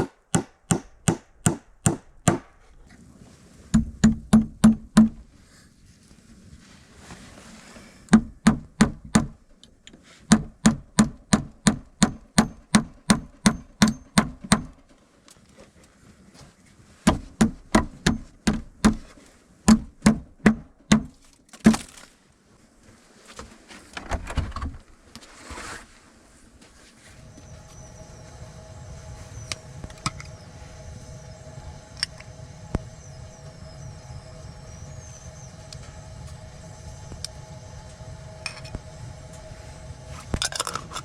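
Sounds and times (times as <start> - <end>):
hammer blows on wood: 0.0 - 2.6, 3.7 - 5.3, 10.2 - 14.8, 17.0 - 19.1
rustling: 2.5 - 3.8, 5.2 - 8.1, 21.2 - 28.3.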